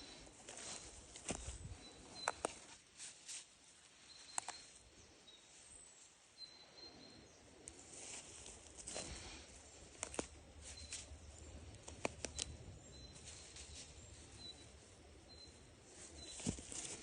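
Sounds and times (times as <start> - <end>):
faint bird chirps: 3.9 - 7.8, 10.3 - 16.6
sharp clicks: 11.7 - 12.6.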